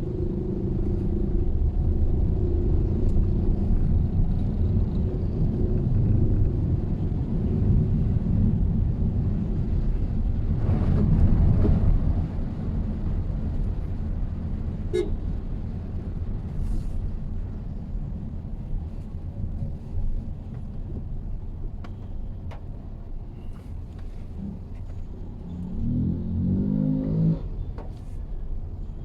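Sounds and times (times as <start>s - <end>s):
car road and engine rumble: 0.0s - 29.0s
car horn toot: 14.9s - 15.2s.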